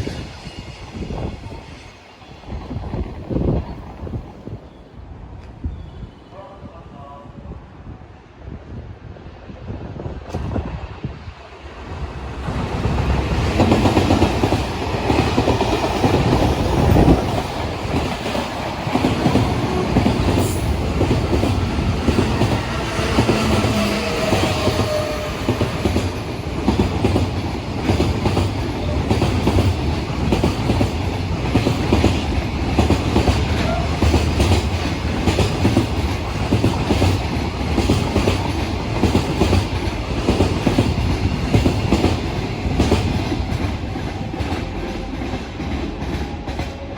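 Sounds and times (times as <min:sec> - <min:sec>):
train wheels clattering over rails: 0:11.8 - 0:46.9.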